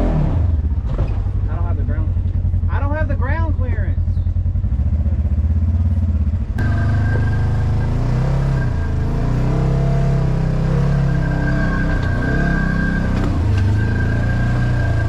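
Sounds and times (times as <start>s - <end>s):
engine revving under throttle: 0.0s - 1.0s, 4.5s - 15.0s
engine idling: 0.6s - 9.3s
high whine: 6.6s - 10.2s.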